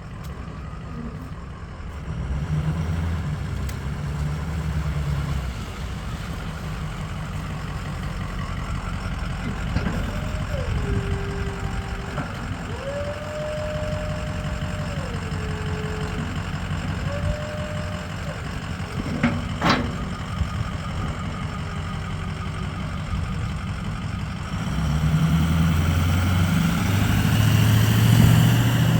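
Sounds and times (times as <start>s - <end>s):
pickup truck engine idling: 0.0s - 28.9s
whining tone: 8.4s - 24.0s.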